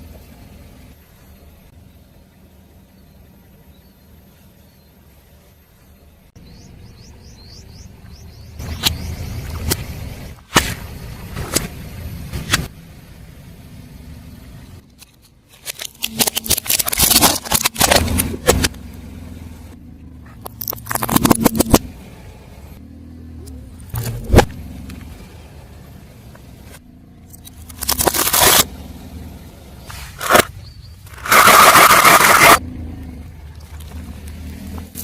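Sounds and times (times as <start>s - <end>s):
car rumbling: 0.0s - 35.0s
tyre crushing crunchy objects: 15.6s - 18.8s, 20.5s - 21.9s, 27.6s - 28.7s, 29.9s - 30.5s, 31.1s - 32.6s.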